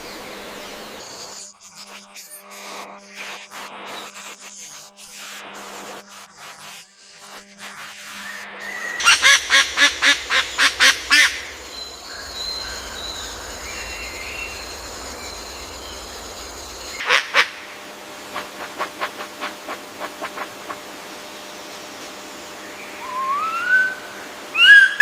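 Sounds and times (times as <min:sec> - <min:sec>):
birds harsh calls: 0:08.6 - 0:25.0
faint bird warbling: 0:08.7 - 0:17.8, 0:22.8 - 0:25.0.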